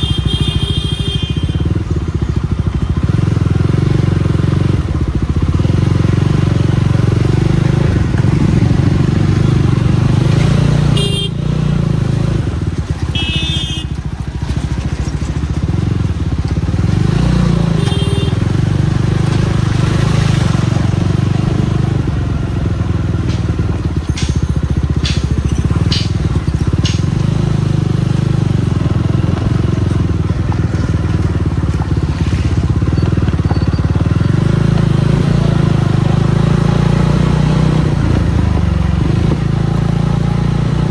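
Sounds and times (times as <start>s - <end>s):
motorcycle engine running: 0.0s - 40.9s
sharp knocks: 22.9s - 27.8s.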